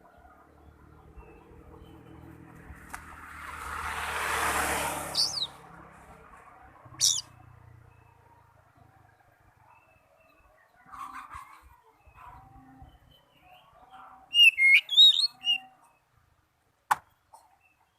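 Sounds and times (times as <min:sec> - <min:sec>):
bird sharp calls: 0:05.1 - 0:05.6, 0:06.9 - 0:08.0, 0:14.2 - 0:16.0.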